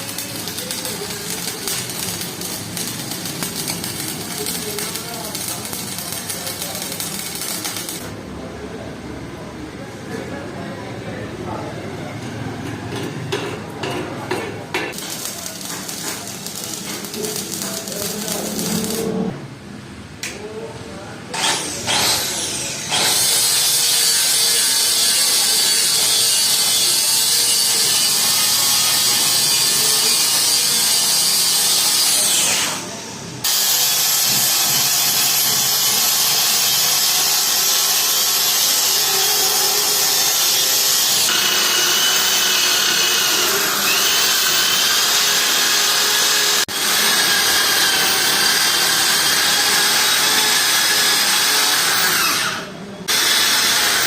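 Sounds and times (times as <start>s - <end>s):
electric power tool running: 33.4s - 54.0s.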